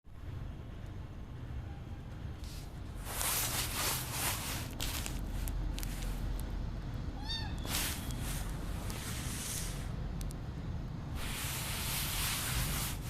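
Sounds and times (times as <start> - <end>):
rustling handling noises: 2.4 - 6.4, 7.6 - 9.9, 11.2 - 13.0.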